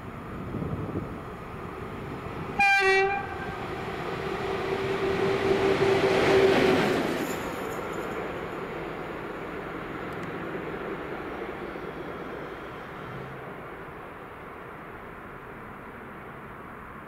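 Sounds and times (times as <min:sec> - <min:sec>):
train wheels on rails: 0:00.3 - 0:13.8
train horn blast: 0:02.6 - 0:03.7.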